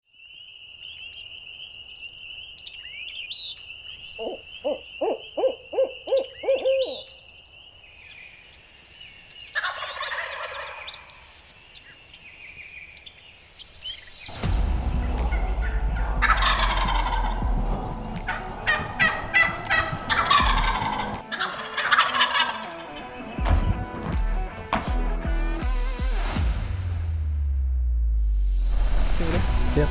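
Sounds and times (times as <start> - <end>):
turkey gobbling: 4.2 - 7.0, 9.6 - 11.3, 15.3 - 17.4, 18.2 - 23.8
deep low rumble: 14.3 - 21.1.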